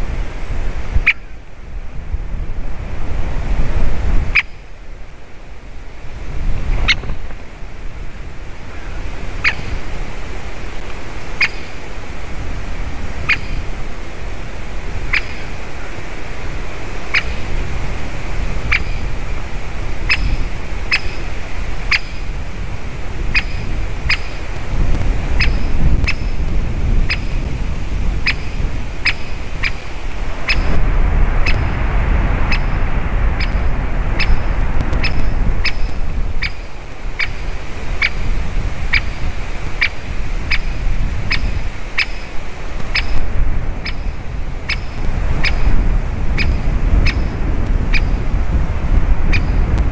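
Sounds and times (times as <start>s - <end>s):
wind rumbling on microphone: 0.0s - 49.9s
woodpecker kik calls: 1.0s - 1.3s, 4.3s - 4.6s, 8.7s - 9.9s, 11.3s - 11.9s, 13.2s - 13.7s, 15.0s - 16.0s, 17.0s - 17.7s, 18.6s - 19.2s, 20.0s - 22.5s, 23.2s - 24.6s, 25.2s - 30.8s, 32.5s - 32.8s, 33.4s - 48.2s, 49.3s - 49.7s.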